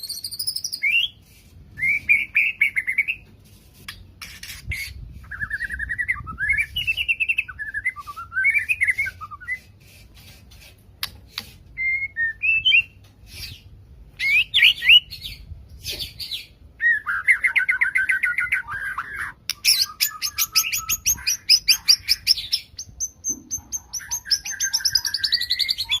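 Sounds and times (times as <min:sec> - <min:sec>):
bird whistled phrases: 0:05.2 - 0:09.7, 0:11.8 - 0:13.6, 0:16.1 - 0:26.0
songbird singing loudly: 0:14.2 - 0:26.0.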